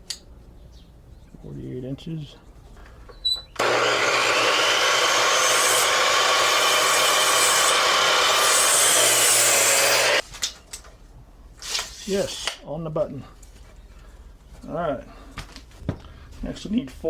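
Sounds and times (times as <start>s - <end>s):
miter saw cutting wood: 3.6s - 10.2s.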